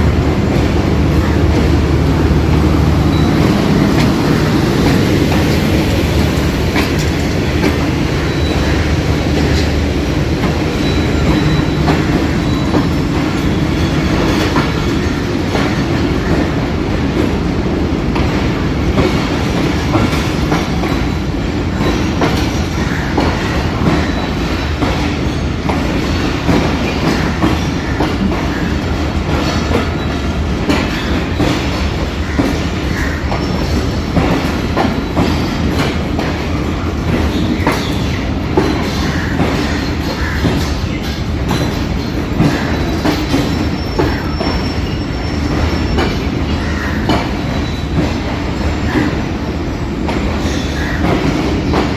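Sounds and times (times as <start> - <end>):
train low rumble: 0.0 - 51.9
train wheels clattering over rail joints: 0.0 - 51.9
wheel squeal: 10.8 - 15.0, 41.5 - 48.0.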